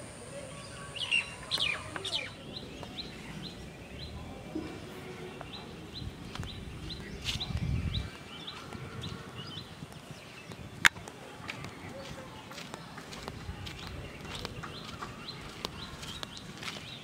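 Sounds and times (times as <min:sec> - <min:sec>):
bird repeating rising chirp: 0:00.0 - 0:03.6
sweeping bird calls: 0:00.0 - 0:04.4
outdoor ambience: 0:00.0 - 0:17.0.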